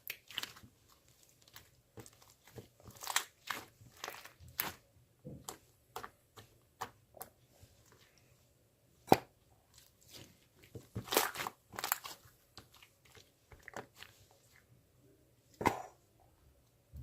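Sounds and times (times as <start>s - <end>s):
close-up crunching: 0.0s - 4.8s, 10.8s - 14.1s.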